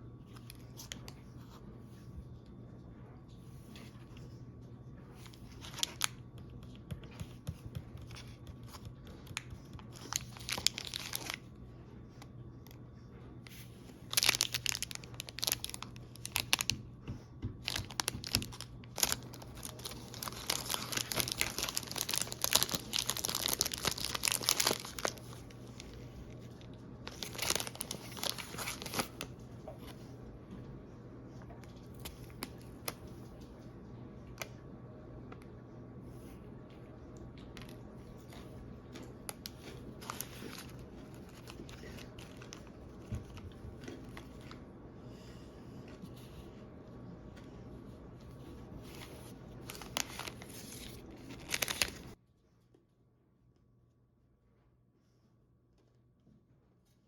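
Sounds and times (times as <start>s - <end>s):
snack packaging crinkling and tearing: 5.2s - 11.5s, 14.0s - 16.8s, 17.6s - 29.4s, 37.4s - 44.6s, 48.8s - 52.2s.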